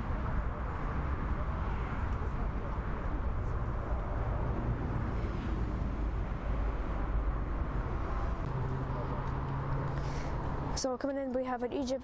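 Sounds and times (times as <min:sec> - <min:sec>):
airport ambience rumble: 0:00.0 - 0:12.0.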